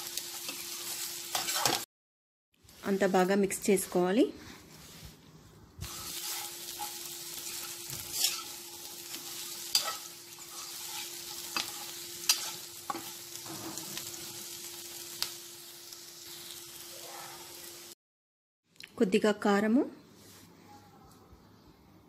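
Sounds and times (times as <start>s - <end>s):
food sizzling in hot oil: 0.0s - 1.9s, 5.8s - 18.0s.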